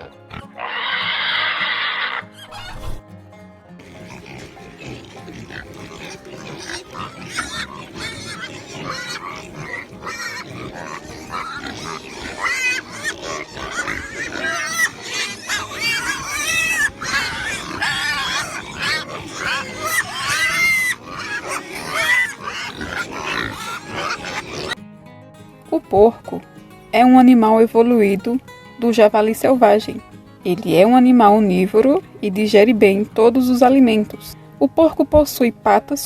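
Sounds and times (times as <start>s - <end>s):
pigs squealing and grunting: 0.0s - 3.0s, 3.8s - 24.8s.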